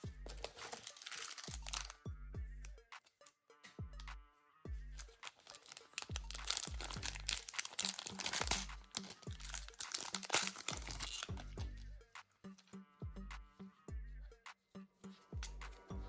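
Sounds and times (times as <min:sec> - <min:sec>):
background music with bass beat: 0:00.0 - 0:00.8, 0:01.4 - 0:07.5, 0:08.4 - 0:16.0
packaging crinkling: 0:00.2 - 0:02.0, 0:05.0 - 0:11.8.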